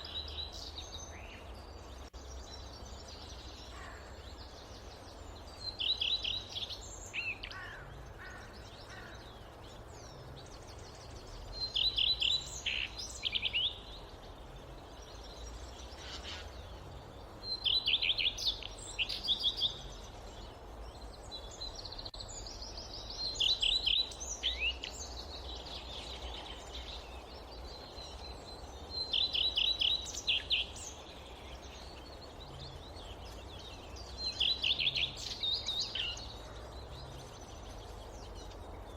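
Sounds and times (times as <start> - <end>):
low forest ambience rumble: 0.0 - 38.9
songbird singing: 0.0 - 38.9.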